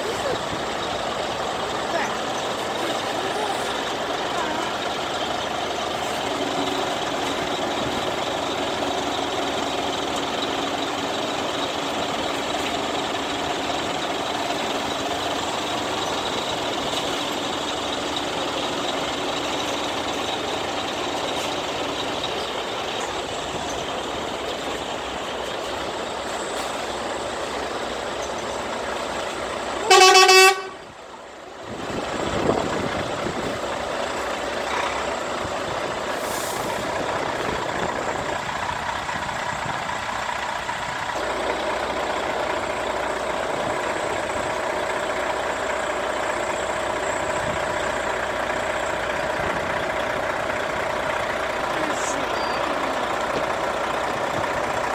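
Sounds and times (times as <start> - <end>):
trucks running past: 0.0 - 54.9
truck horn blast: 29.8 - 30.8.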